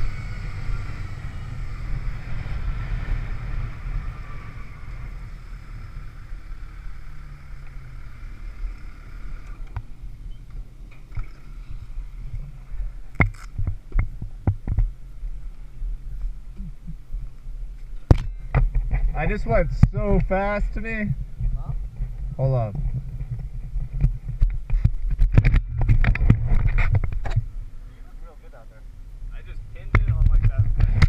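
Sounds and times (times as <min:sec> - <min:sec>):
wind on microphone: 0:00.0 - 0:05.5, 0:11.1 - 0:27.9, 0:29.4 - 0:31.0
motorcycle engine running: 0:00.0 - 0:20.5
low hum: 0:00.0 - 0:31.0
sharp knocks or clicks: 0:29.9 - 0:31.0.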